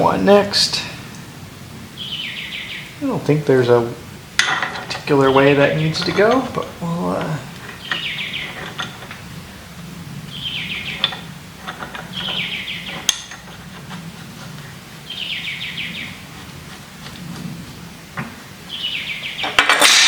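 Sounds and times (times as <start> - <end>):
small bird trilling: 2.0 - 3.0, 7.8 - 8.6, 10.3 - 11.0, 18.7 - 19.5.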